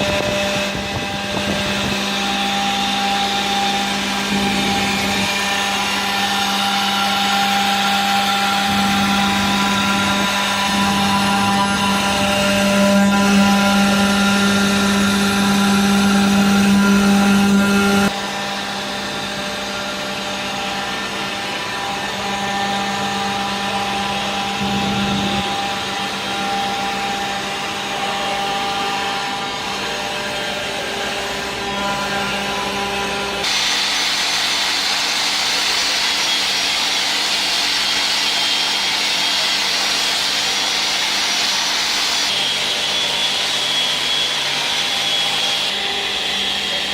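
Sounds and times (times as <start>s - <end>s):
humming tone: 0.0s - 33.6s
stone-processing machinery running: 33.4s - 46.9s.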